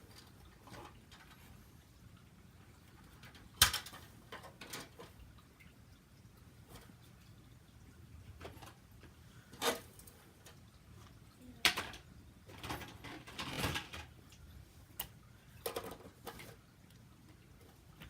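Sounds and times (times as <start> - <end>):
toy train track clicking: 3.2 - 5.0.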